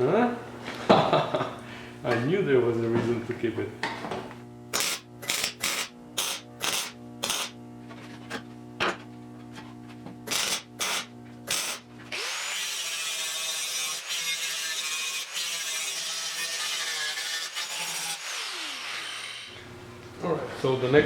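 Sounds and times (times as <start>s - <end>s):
steady hum: 0.0s - 12.1s
power tool running: 4.7s - 7.6s, 10.2s - 19.7s.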